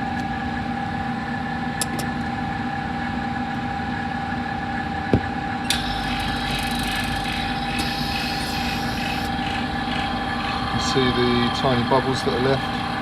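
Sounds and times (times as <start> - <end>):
air hissing: 5.7 - 13.0
electric motor humming: 5.7 - 13.0.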